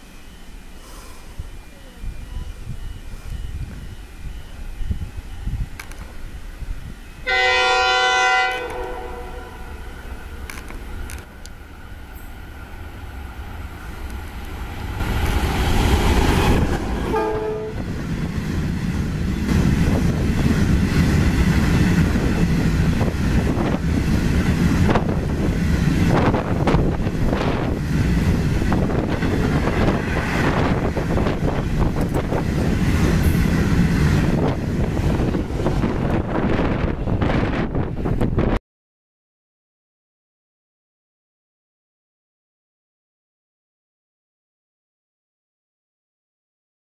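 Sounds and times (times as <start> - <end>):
locomotive horn blast: 7.2 - 9.9, 16.6 - 18.0.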